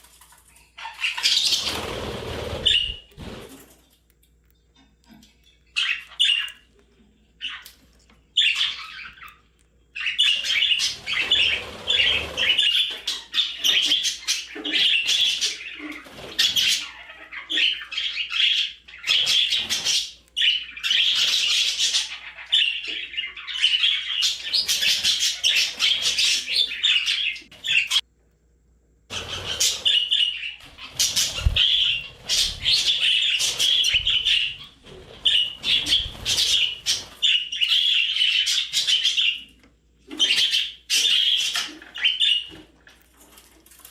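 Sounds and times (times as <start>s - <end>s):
budgerigars chirping: 5.7s - 6.7s, 8.4s - 28.0s, 29.1s - 39.5s, 40.2s - 42.6s.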